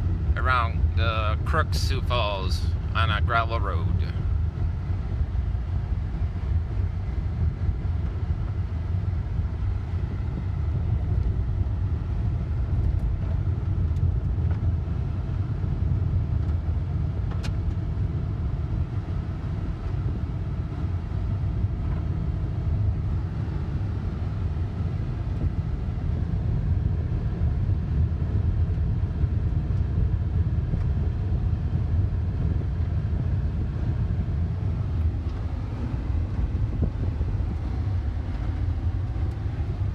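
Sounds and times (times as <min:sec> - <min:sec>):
car driving on gravel road: 0:02.8 - 0:39.9.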